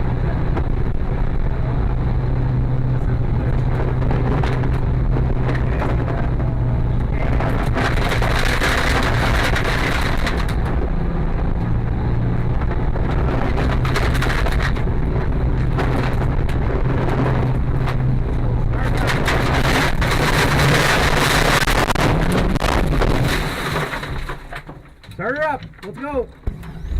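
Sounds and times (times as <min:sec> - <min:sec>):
rally car engine running: 0:00.0 - 0:26.9
wood and brush cracking: 0:07.2 - 0:10.7, 0:13.1 - 0:26.7.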